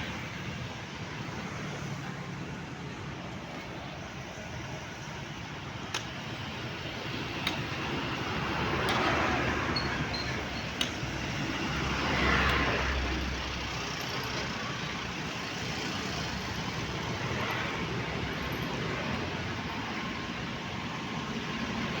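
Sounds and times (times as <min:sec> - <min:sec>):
sharp clicks: 0:05.9 - 0:06.2, 0:10.2 - 0:11.4.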